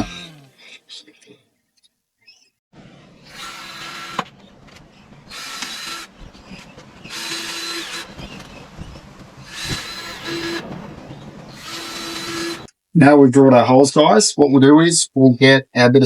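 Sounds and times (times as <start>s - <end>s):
power drill whining: 0.0s - 0.6s, 3.2s - 4.4s, 5.2s - 10.8s, 11.5s - 12.7s.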